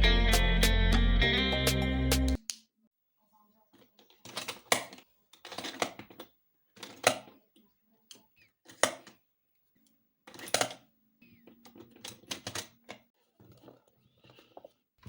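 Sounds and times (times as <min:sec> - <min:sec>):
objects clicking and clattering: 0:03.8 - 0:07.4, 0:10.3 - 0:10.8, 0:11.4 - 0:14.8.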